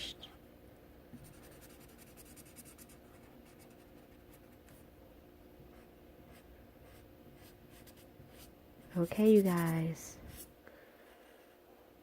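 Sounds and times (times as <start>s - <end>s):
low room hum: 0.0s - 12.0s
colouring strokes on paper: 1.2s - 4.8s, 5.7s - 10.5s.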